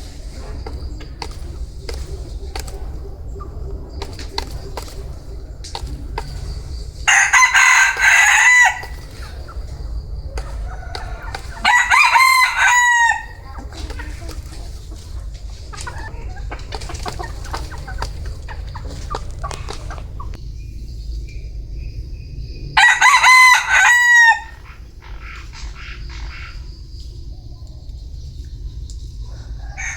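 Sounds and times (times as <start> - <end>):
chicken calls: 0.0 - 20.4, 22.7 - 29.9
low rumble: 0.0 - 23.8
rooster crowing: 7.1 - 9.6, 10.4 - 13.7, 22.8 - 24.8, 29.2 - 29.9.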